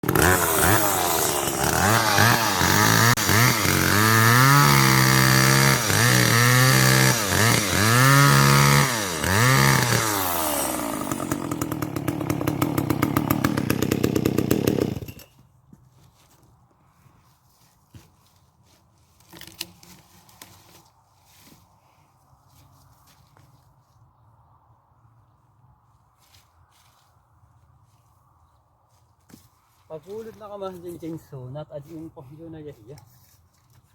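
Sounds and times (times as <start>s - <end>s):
chainsaw revving and idling: 0.0s - 15.3s.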